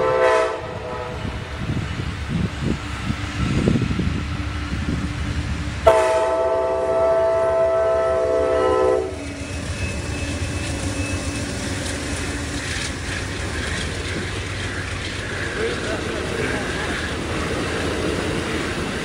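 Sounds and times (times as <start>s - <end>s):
locomotive horn blast: 0.0s - 1.4s, 5.8s - 9.2s
locomotive engines rumbling: 0.0s - 19.0s
train wheels clattering on rails: 8.7s - 19.0s.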